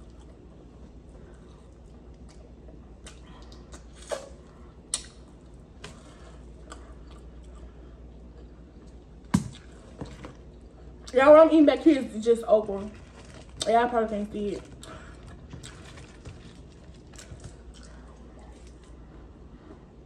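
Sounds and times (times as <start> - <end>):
wet mouth clicks and smacks: 4.9 - 5.2
chewing fried chicken: 14.5 - 20.0.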